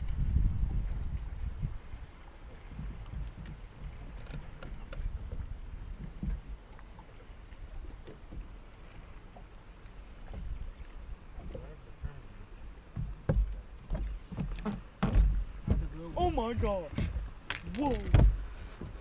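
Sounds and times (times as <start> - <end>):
wind buffeting microphone: 0.0 - 8.7, 12.9 - 19.0
water lapping against boat hull: 0.0 - 19.0.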